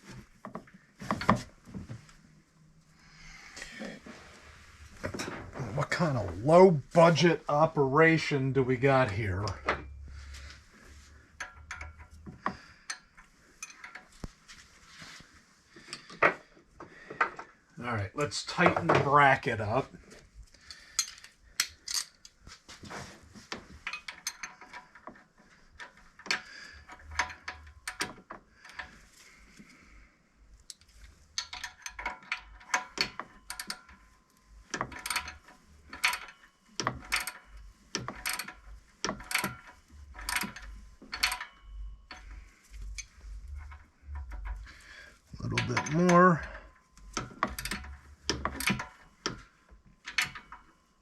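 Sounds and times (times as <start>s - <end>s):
metal clinks: 20.6s - 22.2s, 30.8s - 50.9s
ratchet wrench clicking: 34.7s - 44.8s, 47.0s - 49.4s.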